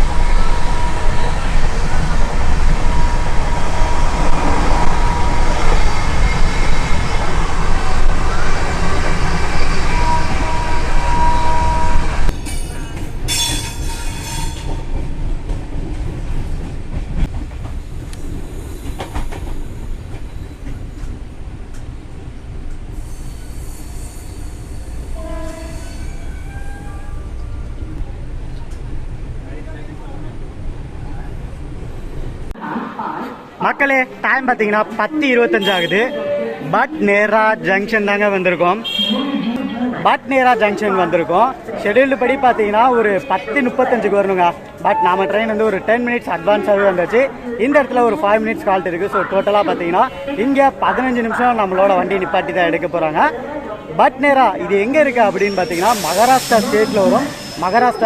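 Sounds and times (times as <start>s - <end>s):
train rumbling on track: 0.0s - 33.5s, 54.4s - 58.0s
long high-pitched tones: 44.9s - 45.7s.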